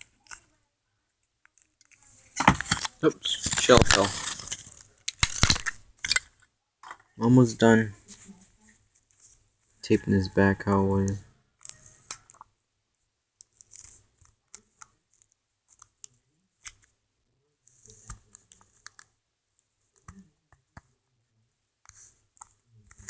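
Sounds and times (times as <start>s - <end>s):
tape being pulled and torn: 1.9s - 6.3s.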